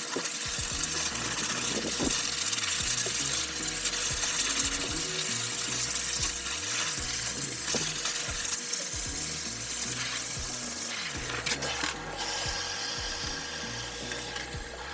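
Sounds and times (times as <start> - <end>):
background music with bass: 0.4 - 14.9
pet dryer blowing air: 10.3 - 14.9.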